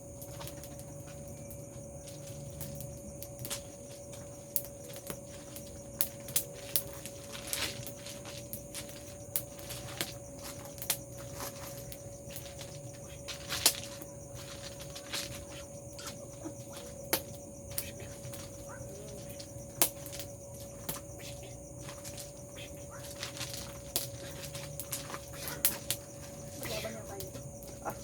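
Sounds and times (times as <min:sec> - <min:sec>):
bonfire crackling and popping: 0:00.0 - 0:28.0
faint steady hum: 0:00.0 - 0:28.0.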